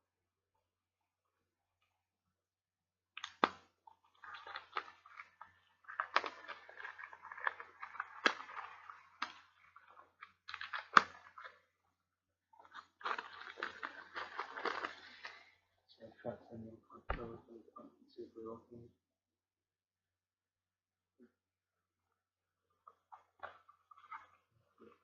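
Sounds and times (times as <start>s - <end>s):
plastic packaging crinkling: 4.1s - 11.6s, 12.6s - 15.6s.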